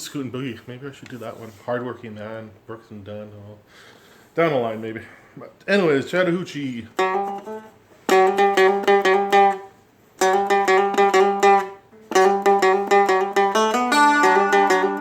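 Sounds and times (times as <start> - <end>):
acoustic guitar picking riff: 6.9 - 15.0.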